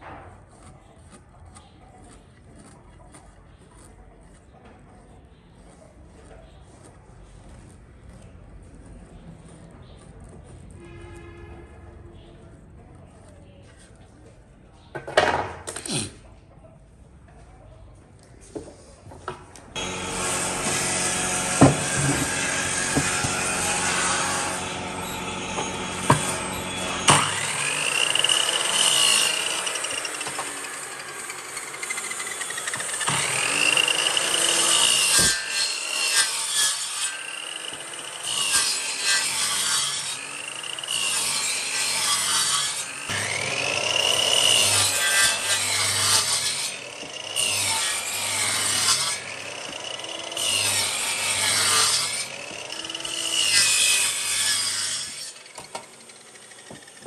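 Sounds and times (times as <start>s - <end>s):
power tool cutting wood: 19.8s - 57.0s.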